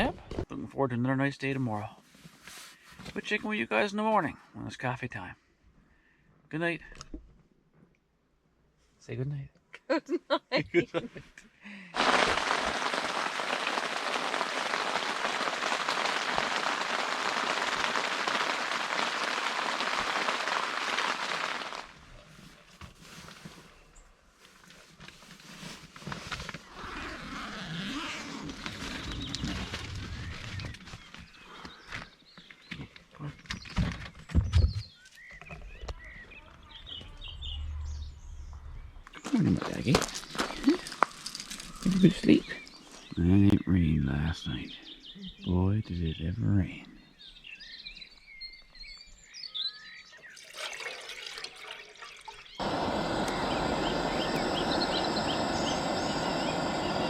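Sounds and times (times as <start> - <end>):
heavy rain on a tent: 12.0 - 22.0, 52.6 - 57.0
small birds chirping: 26.6 - 50.5, 51.6 - 57.0.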